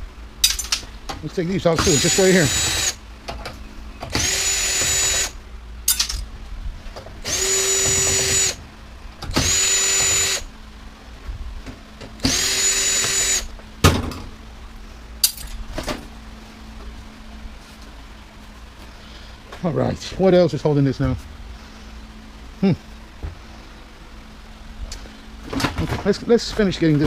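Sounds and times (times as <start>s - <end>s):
metal parts clicking and knocking: 0.4s - 0.9s, 5.9s - 6.3s, 15.2s - 15.6s
cordless drill whining: 1.8s - 3.0s, 4.1s - 5.4s, 7.2s - 8.6s, 9.3s - 10.5s, 12.2s - 13.5s.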